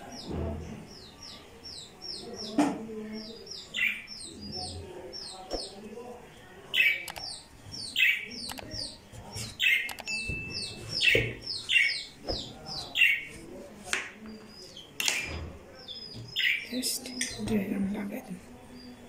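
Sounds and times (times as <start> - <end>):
bird chirping: 0.0 - 6.1, 6.7 - 13.4, 14.3 - 19.0.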